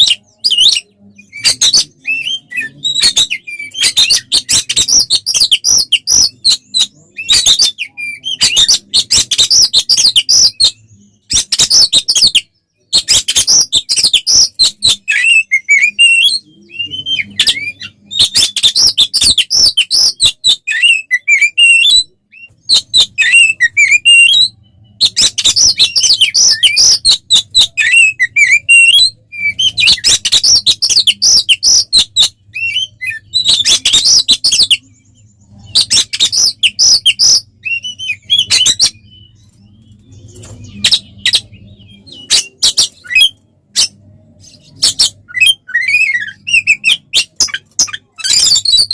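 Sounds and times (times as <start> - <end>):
bird whistled phrases: 35.5 - 39.6, 40.6 - 48.9.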